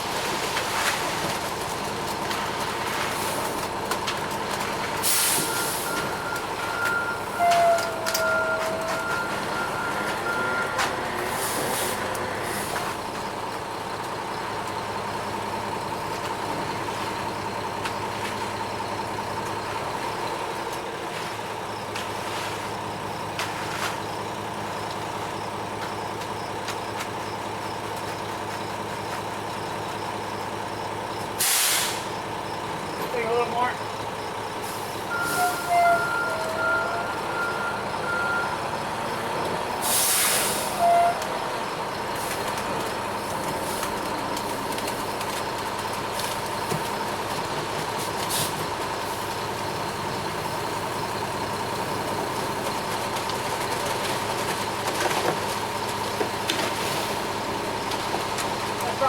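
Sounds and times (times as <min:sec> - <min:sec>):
concrete truck engine running: 0:00.0 - 0:59.0
air hiss bursts: 0:31.4 - 0:32.1, 0:39.8 - 0:40.8.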